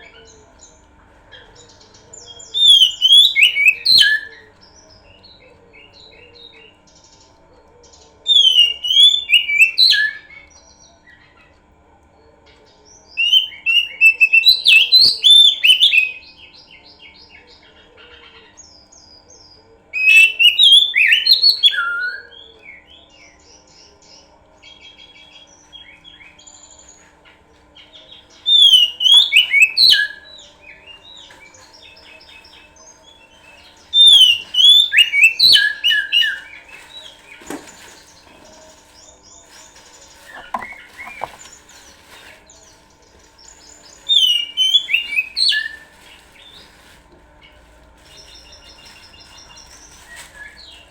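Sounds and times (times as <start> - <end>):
bird whistles and trills: 1.4 - 5.0, 28.4 - 38.2, 43.4 - 46.6
soft bird chirps: 27.8 - 50.9.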